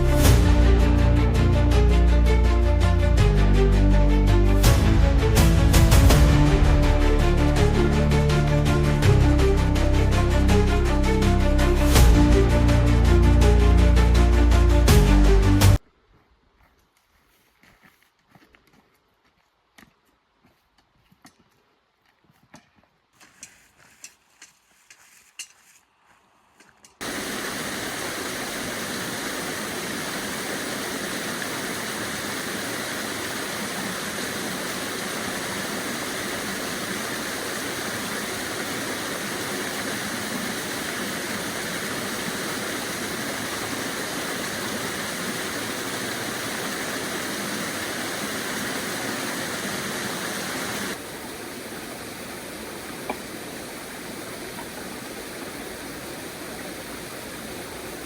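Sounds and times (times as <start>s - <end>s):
river water flowing: 0.0s - 15.8s, 27.0s - 58.0s.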